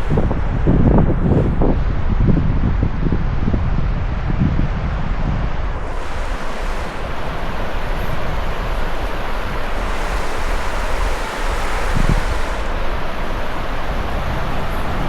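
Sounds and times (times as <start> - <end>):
wind buffeting microphone: 0.0 - 15.0
surf washing onto beach: 5.6 - 15.0.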